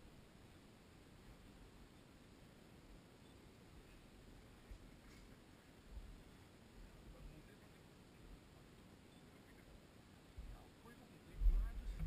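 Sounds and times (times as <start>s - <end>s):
faint low rumble: 0.0s - 12.0s
soft low thumps: 11.3s - 12.0s.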